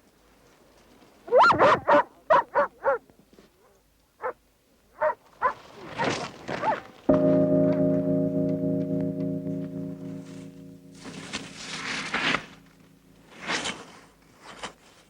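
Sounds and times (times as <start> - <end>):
dog barking: 1.4 - 3.0, 5.0 - 6.8.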